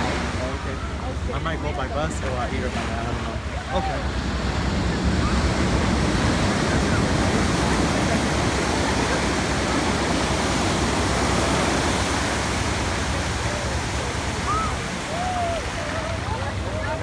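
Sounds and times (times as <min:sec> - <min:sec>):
ocean surf breaking on beach: 0:00.0 - 0:17.0.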